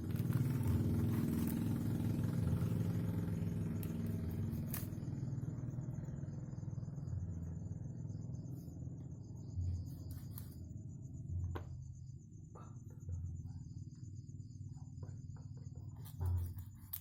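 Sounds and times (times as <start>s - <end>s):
crickets chirping: 0.0s - 17.0s
low steady rumble: 0.0s - 17.0s.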